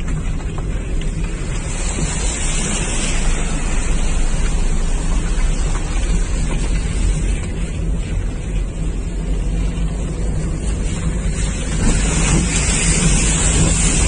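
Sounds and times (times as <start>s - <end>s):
car engine hum: 0.0s - 14.0s
rain and water rushing: 0.0s - 14.0s.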